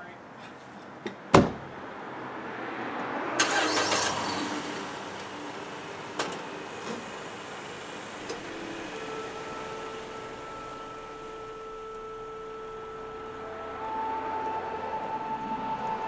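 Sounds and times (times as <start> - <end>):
car door slamming: 1.3 - 1.8
car engine starting and idling: 3.3 - 15.1.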